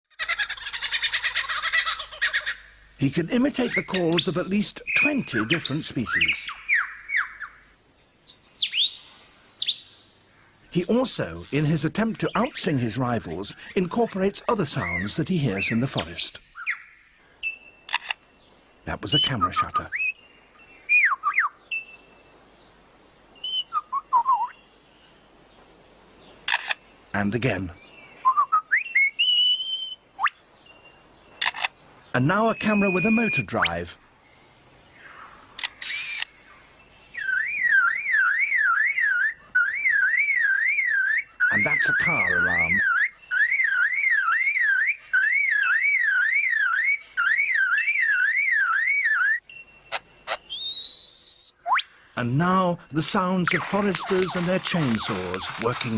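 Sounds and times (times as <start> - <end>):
lyrebird whistled song: 3.4 - 10.0, 14.8 - 18.0, 18.9 - 22.5, 23.4 - 24.7, 27.8 - 33.9, 35.8 - 52.0, 53.2 - 55.9
lyrebird mimicking car alarm: 31.4 - 33.9, 37.2 - 51.9, 53.0 - 55.9.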